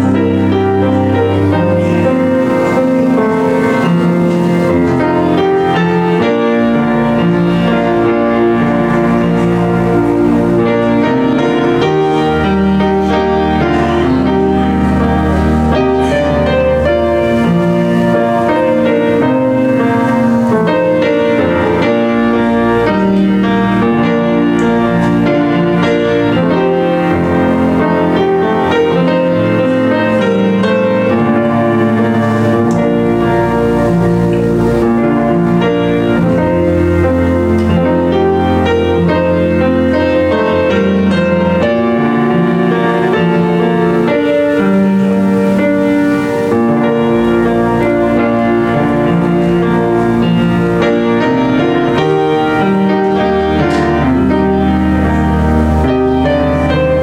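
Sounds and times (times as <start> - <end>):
piano playing slow chords: 0.0 - 57.0.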